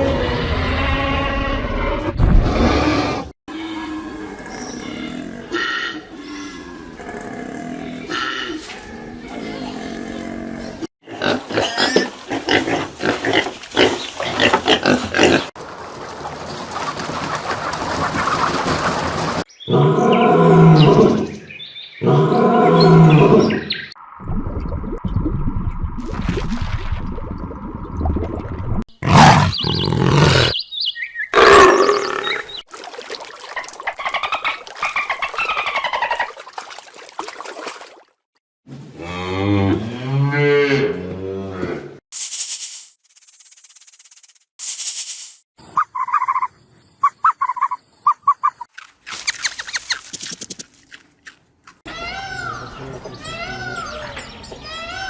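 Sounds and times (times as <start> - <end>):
pigs grunting: 2.6 - 15.6, 29.0 - 30.6.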